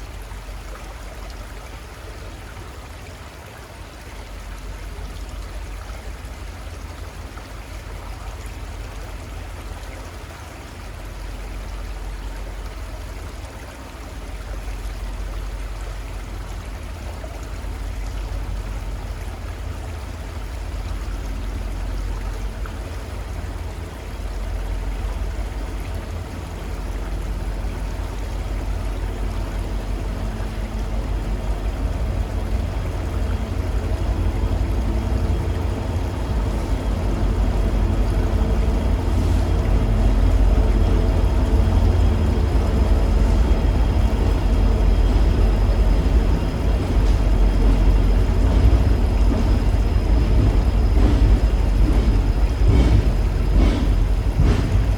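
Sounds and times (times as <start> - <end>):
river flowing: 0.0 - 54.9
vehicle engine hum: 0.0 - 54.9
deep low rumble: 24.0 - 54.9.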